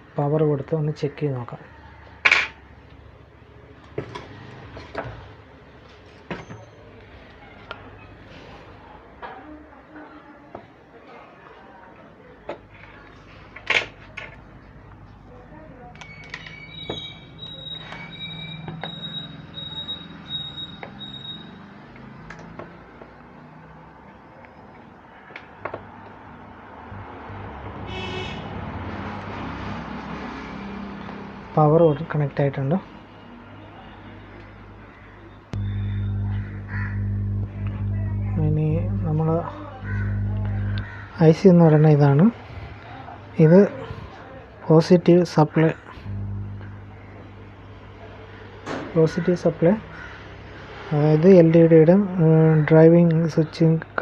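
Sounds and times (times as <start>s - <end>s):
low rumble: 35.6s - 41.1s, 46.0s - 47.0s
faint low hum: 35.6s - 44.4s, 45.8s - 48.4s.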